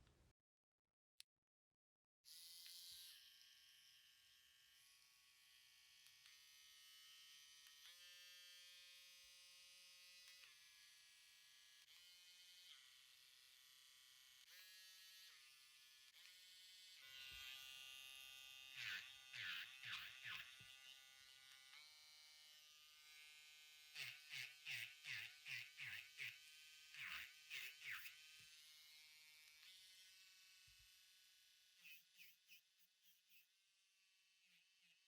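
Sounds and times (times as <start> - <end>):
electric nail drill whining: 17.0 - 22.3, 27.0 - 28.2.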